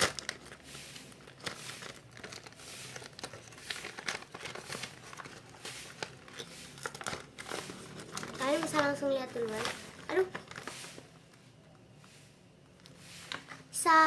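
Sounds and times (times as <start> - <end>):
wrapping paper crinkling: 0.0 - 11.2.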